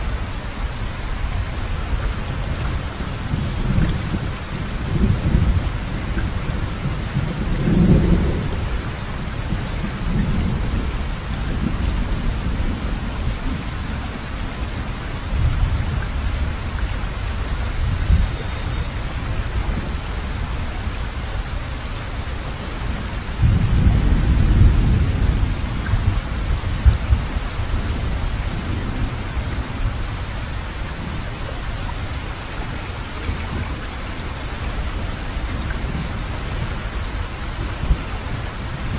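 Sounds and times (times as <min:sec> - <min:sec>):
steady rain falling: 0:00.0 - 0:38.9
rolling thunder: 0:01.4 - 0:14.1, 0:22.8 - 0:31.2.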